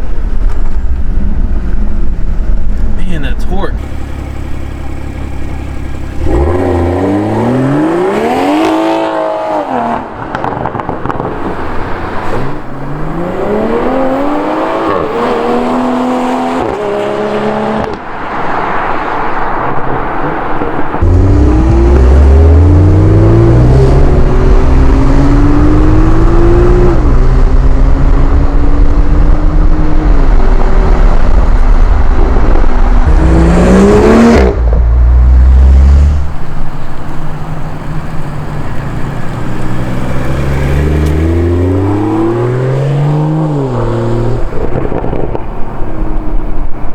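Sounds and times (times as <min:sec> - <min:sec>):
heavy low rumble: 0:00.0 - 0:08.0
car engine accelerating hard: 0:03.8 - 0:18.6, 0:19.7 - 0:46.8.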